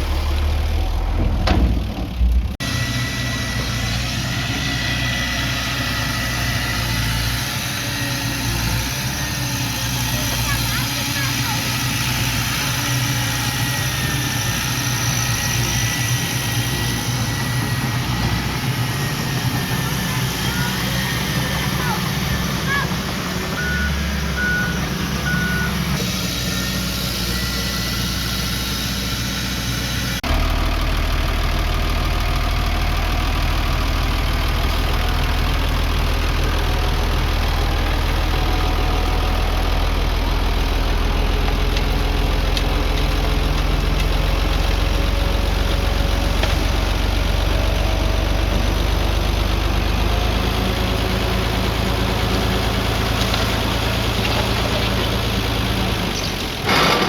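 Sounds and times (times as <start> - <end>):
heavy machinery engines running: 0.0 - 57.0
reversing beeper: 15.8 - 28.9.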